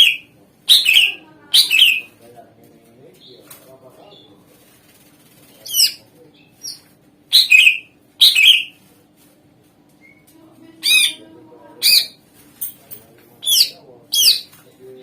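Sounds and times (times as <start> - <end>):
bird singing sharp calls: 0.0 - 2.1, 5.6 - 8.8, 13.4 - 14.5.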